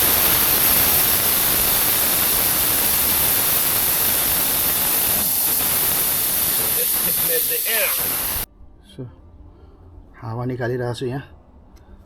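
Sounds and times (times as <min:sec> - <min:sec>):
air hissing out of tyre: 0:00.0 - 0:08.5.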